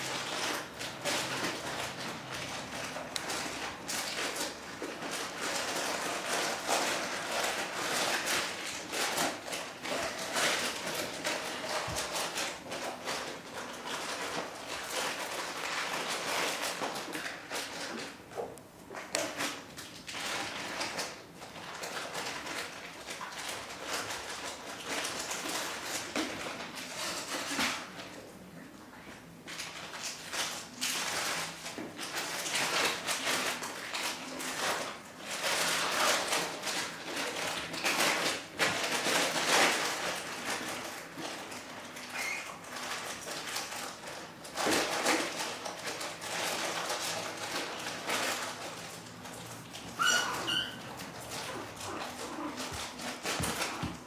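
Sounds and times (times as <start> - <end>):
puppies rustling and scuffling: 0.0 - 54.0
faint high squeaks: 50.0 - 50.9.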